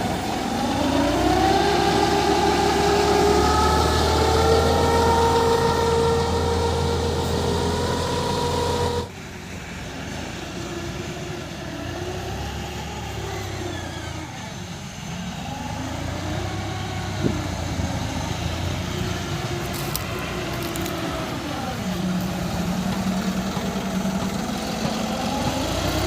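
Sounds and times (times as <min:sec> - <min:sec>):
loud droning tone: 0:00.0 - 0:09.2
vehicle engine running: 0:00.0 - 0:09.6, 0:10.6 - 0:26.0.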